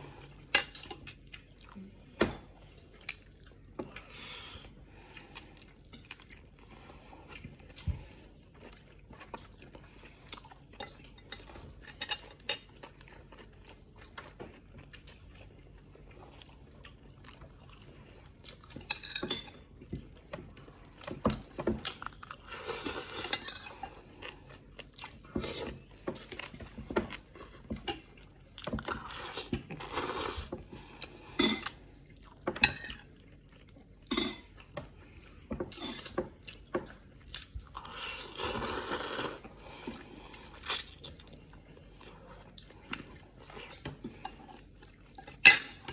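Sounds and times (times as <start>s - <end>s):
chewing and biting food: 2.6s - 18.9s
cutlery and dishes clinking: 31.4s - 31.8s, 34.1s - 34.6s, 35.6s - 36.2s.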